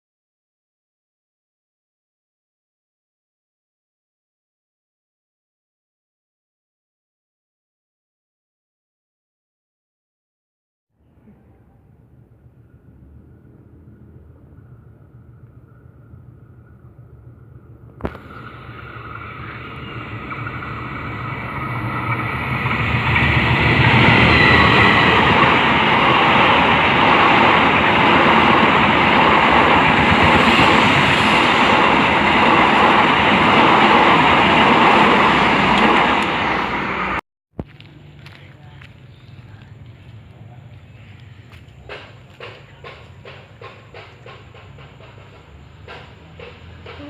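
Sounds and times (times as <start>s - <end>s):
train rumbling past: 11.0s - 37.2s, 37.8s - 47.0s.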